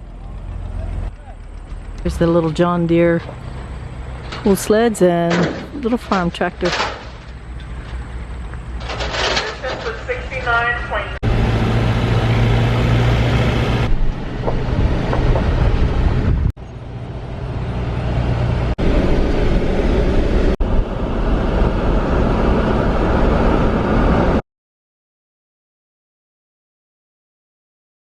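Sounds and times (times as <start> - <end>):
tractor engines pulling under load: 0.0 - 19.9.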